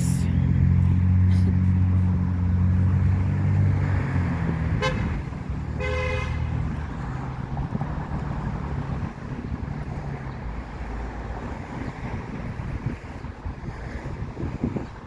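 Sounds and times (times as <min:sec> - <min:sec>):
passing vehicle engine hum: 0:00.0 - 0:15.0
car horn honking: 0:04.8 - 0:05.2, 0:05.8 - 0:06.5.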